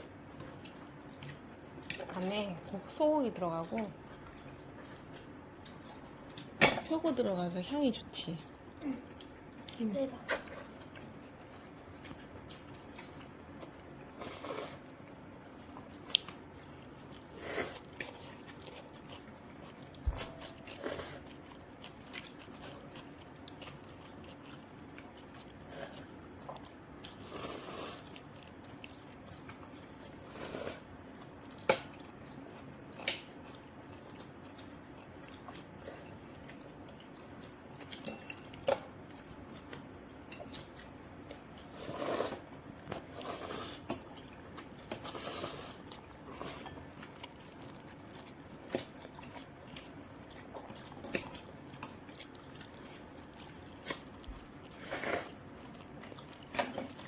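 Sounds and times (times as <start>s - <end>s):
chewing and mouth noises: 0.0s - 57.0s.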